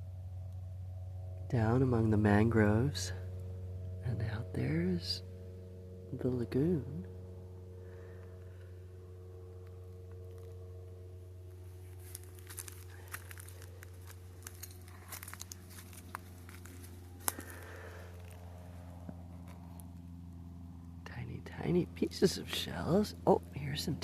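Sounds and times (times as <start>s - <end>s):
steady low hum: 0.0s - 24.0s
crunching of shell fragments: 12.0s - 18.3s.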